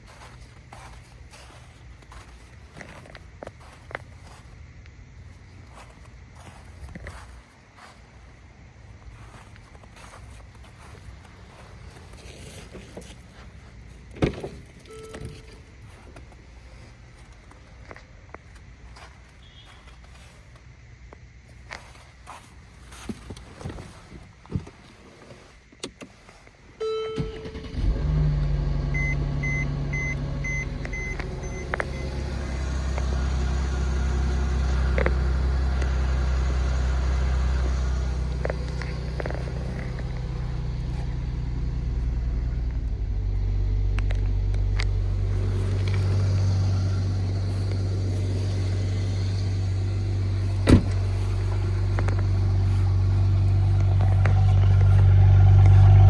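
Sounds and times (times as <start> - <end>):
car engine starting and idling: 0.0 - 4.4, 9.0 - 18.0, 25.4 - 56.0
electronic warning beeps: 14.9 - 15.7, 26.8 - 27.7, 28.9 - 32.2.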